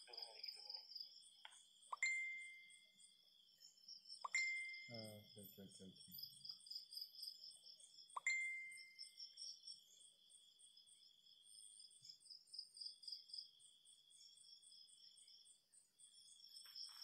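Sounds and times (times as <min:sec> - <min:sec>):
cricket pulsing chirp: 0:00.0 - 0:17.0
insects trilling: 0:12.0 - 0:17.0.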